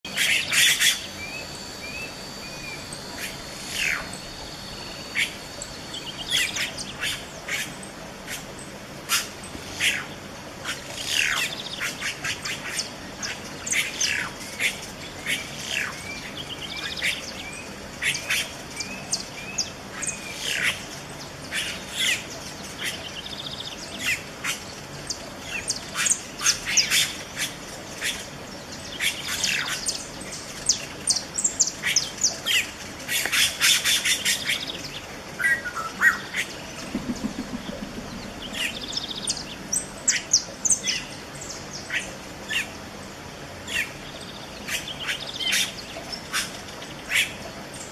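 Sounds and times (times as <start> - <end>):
bird squawks and chirps: 0.1 - 4.1, 35.4 - 39.4.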